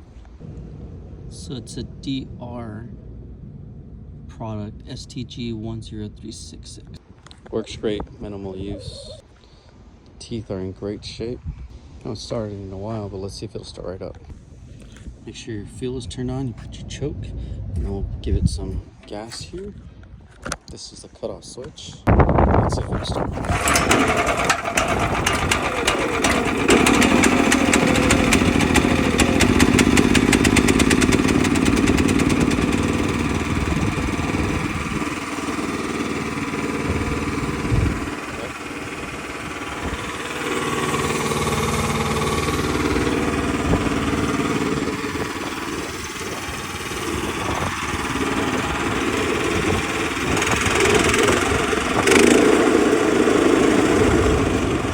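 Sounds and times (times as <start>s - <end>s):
small gasoline engine running: 23.3s - 54.9s.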